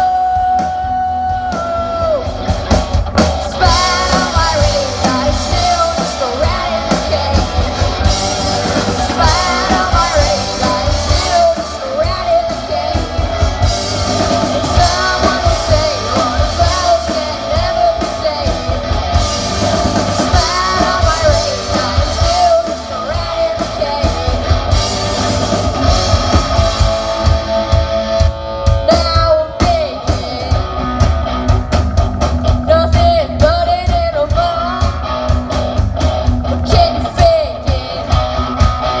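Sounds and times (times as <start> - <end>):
person singing: 0.0 - 2.4, 3.4 - 24.8, 28.8 - 31.0, 32.6 - 35.1, 36.5 - 38.4
drum kit: 0.0 - 39.0
electric guitar: 0.0 - 39.0.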